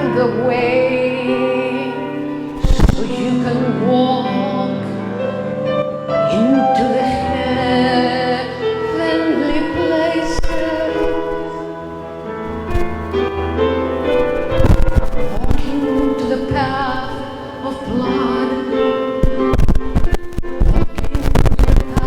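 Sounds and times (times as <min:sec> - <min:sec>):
person singing long wavering notes: 0:15.3 - 0:22.0.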